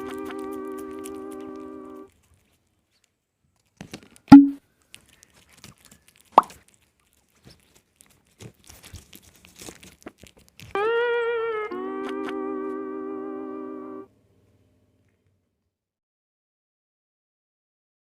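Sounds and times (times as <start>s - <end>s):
cat eating: 0.0s - 12.5s
faint mouth clicks: 6.3s - 6.6s.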